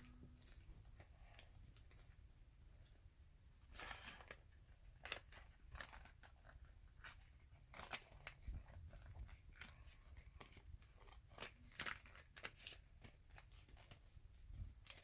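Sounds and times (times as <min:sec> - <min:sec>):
paper crinkling: 0:03.6 - 0:15.0.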